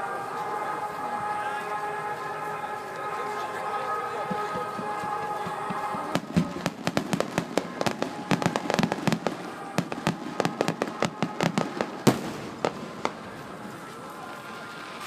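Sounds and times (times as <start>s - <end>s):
fireworks bangs and crackles: 3.9s - 15.0s.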